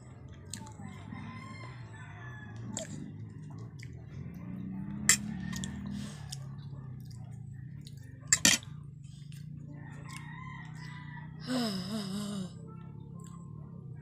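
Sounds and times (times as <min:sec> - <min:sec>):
low steady hum: 0:00.0 - 0:14.0
mouth chewing: 0:02.7 - 0:04.0.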